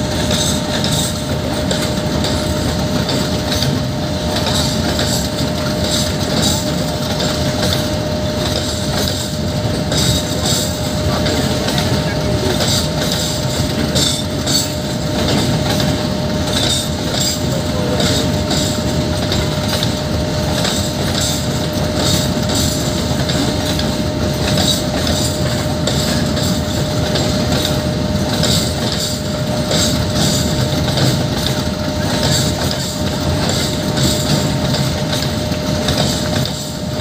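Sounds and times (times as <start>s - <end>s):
train wheels clacking over joints: 0.0s - 37.0s.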